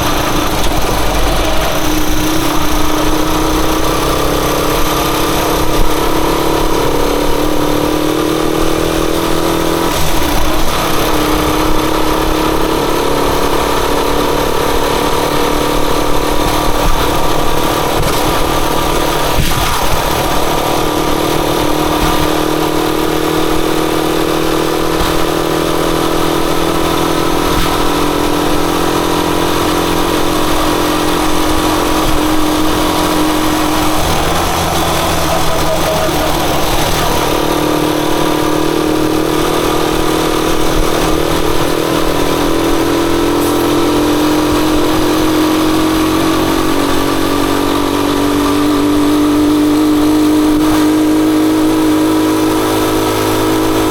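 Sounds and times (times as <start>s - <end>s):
rushing noise: 0.0s - 6.7s, 30.3s - 47.6s
motorcycle engine running: 0.0s - 53.9s.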